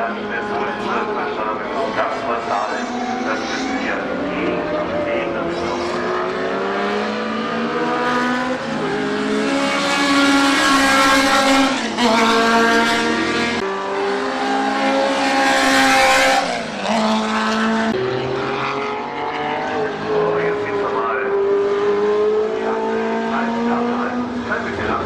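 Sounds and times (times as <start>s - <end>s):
racing car engines at full throttle: 0.0s - 25.0s.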